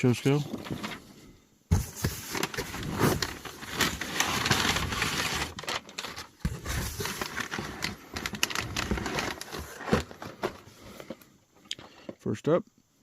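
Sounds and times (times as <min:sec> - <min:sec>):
packaging crinkling and rustling: 0:01.8 - 0:11.2.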